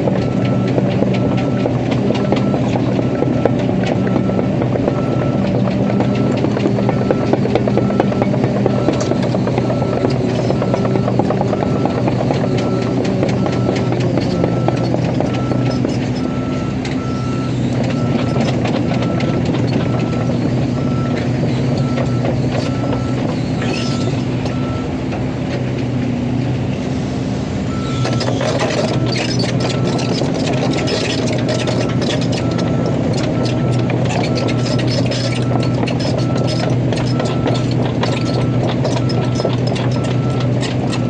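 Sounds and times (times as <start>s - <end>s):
clattering and clanking: 0.0s - 25.9s, 28.0s - 41.0s
excavator diesel engine running: 0.0s - 41.0s
travel alarm beeping: 4.0s - 18.4s.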